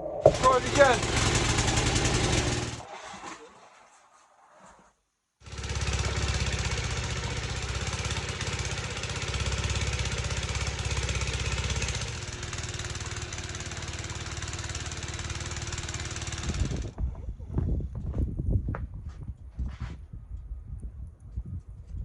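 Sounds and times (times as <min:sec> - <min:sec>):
snowblower engine running: 0:00.3 - 0:02.9, 0:05.4 - 0:17.0.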